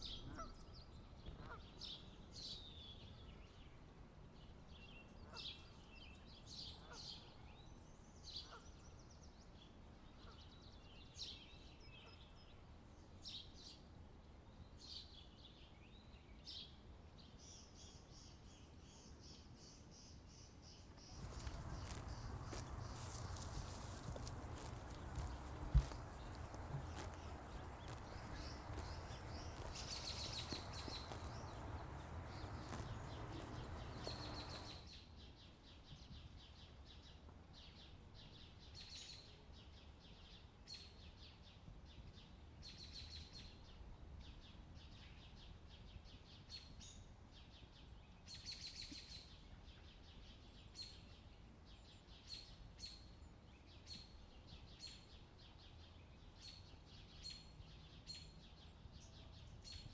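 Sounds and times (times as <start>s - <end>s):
small birds chirping: 21.0s - 34.9s.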